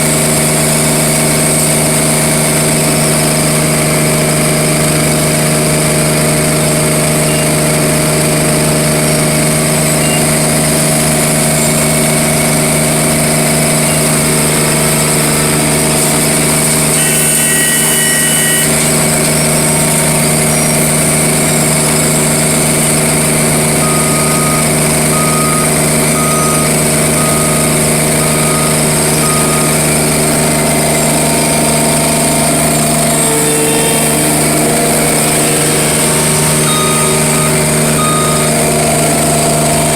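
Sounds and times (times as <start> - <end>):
machine engine humming: 0.0 - 39.9
short beeps: 7.2 - 7.6, 10.0 - 10.3, 23.8 - 39.9
two-tone electronic beep: 7.2 - 7.6, 10.0 - 10.5, 23.8 - 39.9.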